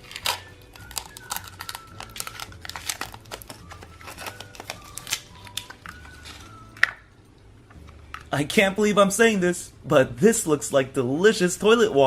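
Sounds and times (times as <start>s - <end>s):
cellophane wrapper crinkling: 0.0s - 7.0s.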